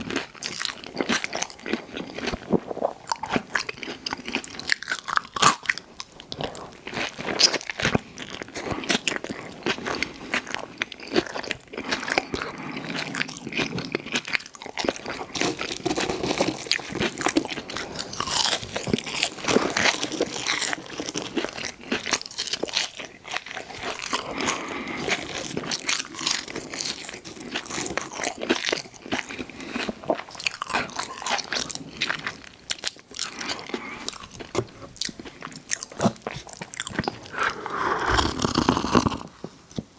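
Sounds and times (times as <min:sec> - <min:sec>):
person chewing crunchy food: 0:00.0 - 0:39.9
mouth clicks: 0:37.3 - 0:39.3.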